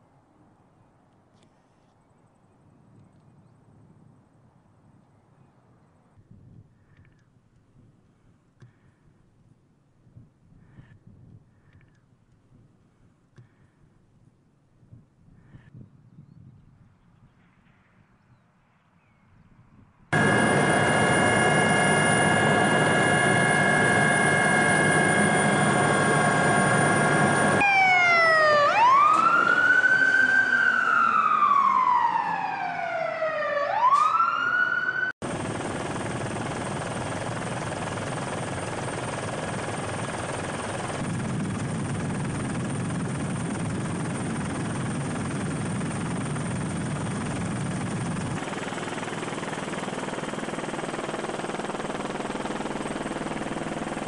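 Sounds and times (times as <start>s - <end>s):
machine hum with high whine: 20.2s - 27.7s
emergency siren wailing: 20.2s - 35.2s.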